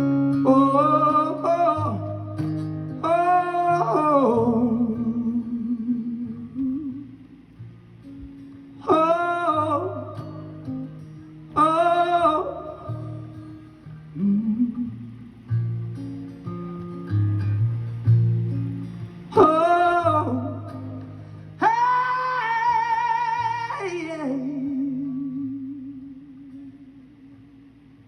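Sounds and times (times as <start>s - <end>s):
long held vocal notes: 0.0s - 7.4s, 8.8s - 15.5s, 19.3s - 27.5s.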